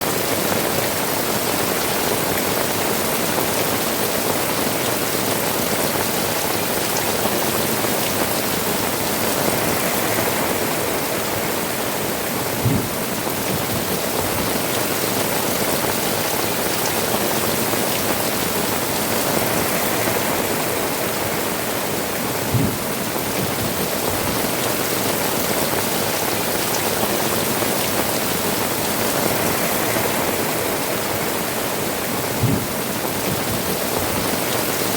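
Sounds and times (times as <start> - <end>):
heavy rain on tiled roofs: 0.0 - 34.9
low thumps: 12.6 - 13.0, 22.5 - 22.8, 32.4 - 32.8.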